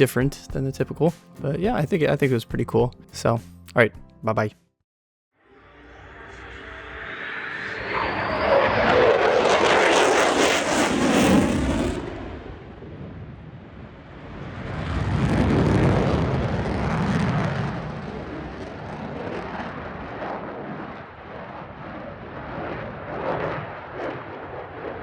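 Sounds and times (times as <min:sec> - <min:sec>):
fighter jet flying past: 0:05.4 - 0:25.0.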